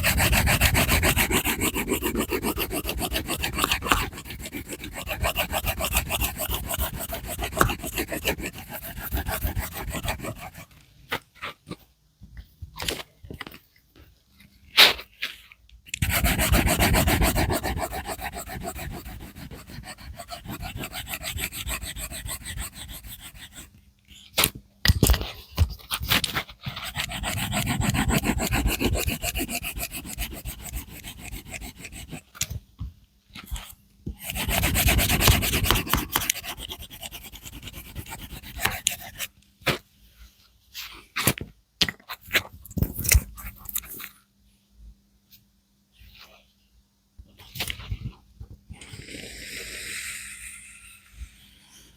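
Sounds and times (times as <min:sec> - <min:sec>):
colouring strokes scratching on paper: 0:00.0 - 0:10.7, 0:16.0 - 0:23.7, 0:26.7 - 0:32.2, 0:34.2 - 0:39.3.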